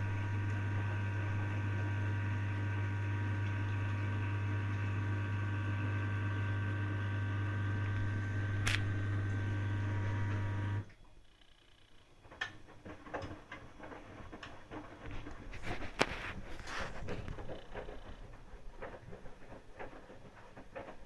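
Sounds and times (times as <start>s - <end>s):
washing machine humming: 0.0s - 10.9s
faint clicks and knocks: 11.9s - 21.0s.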